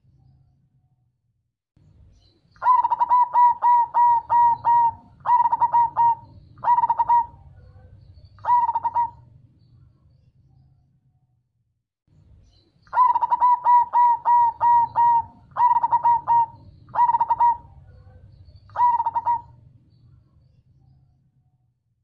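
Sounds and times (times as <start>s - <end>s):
dove cooing: 2.6s - 9.3s, 12.9s - 19.6s.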